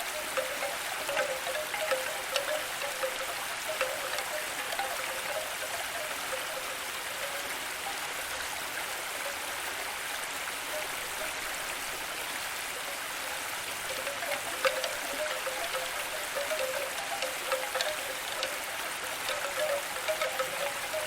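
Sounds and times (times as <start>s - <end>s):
faint droplet notes: 0.0s - 8.0s, 13.9s - 21.0s
running water: 0.0s - 21.0s.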